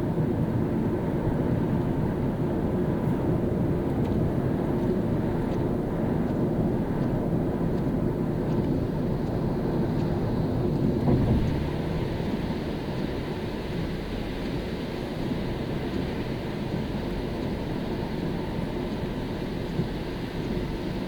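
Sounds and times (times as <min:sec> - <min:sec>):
car tyres and engine rumble: 0:00.0 - 0:21.0
faint light ticks: 0:03.9 - 0:10.8.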